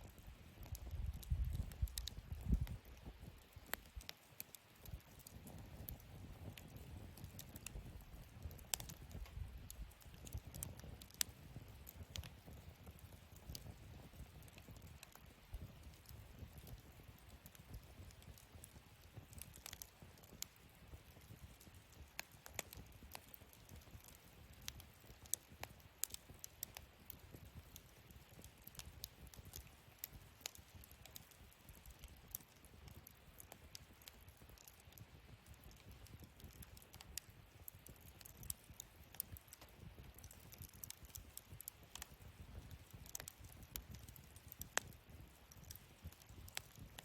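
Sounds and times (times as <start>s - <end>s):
low rush of flame: 0.0s - 4.1s, 4.7s - 20.5s
fire crackling and popping: 0.0s - 47.0s.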